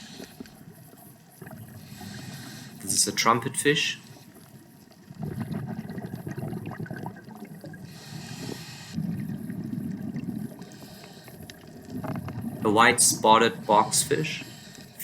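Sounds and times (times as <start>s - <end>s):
regulator inhalation hiss: 1.8s - 3.0s, 7.9s - 9.1s, 10.6s - 11.4s
gurgling exhalation bubbles: 5.0s - 8.1s, 9.0s - 10.7s.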